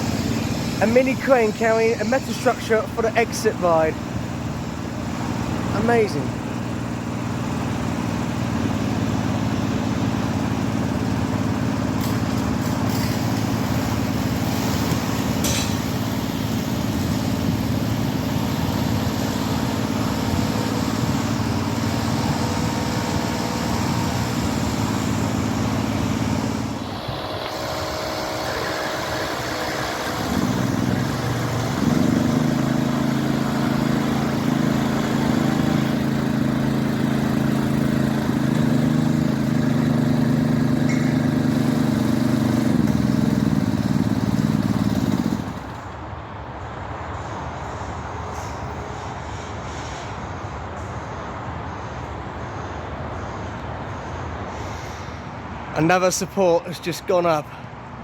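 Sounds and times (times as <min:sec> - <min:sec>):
engine droning: 0:00.0 - 0:58.0
louder engine note: 0:08.7 - 0:45.8.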